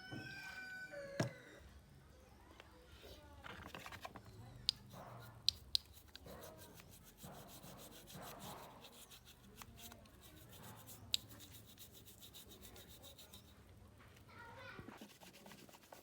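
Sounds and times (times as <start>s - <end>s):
faint rubbing strokes: 4.8s - 13.6s, 14.9s - 16.0s.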